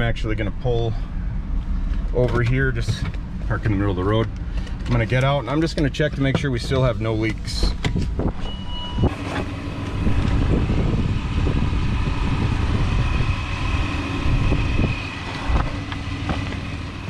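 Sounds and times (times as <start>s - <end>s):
car engine idling: 0.0s - 17.0s
short beep: 8.4s - 9.1s.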